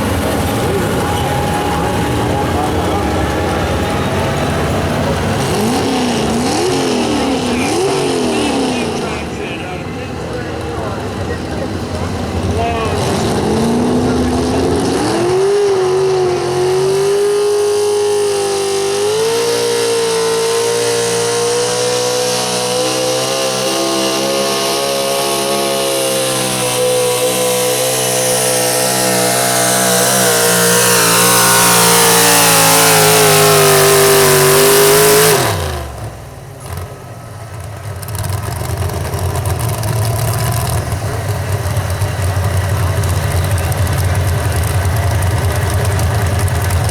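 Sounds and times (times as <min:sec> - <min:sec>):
truck engine at high revs: 0:00.0 - 0:46.9.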